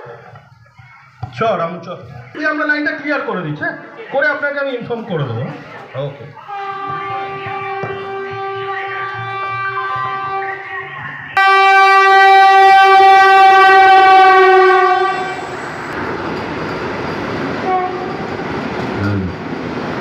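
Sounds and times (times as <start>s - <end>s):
train horn blowing: 6.4s - 15.9s, 17.6s - 18.3s
train rumbling past: 6.4s - 20.0s.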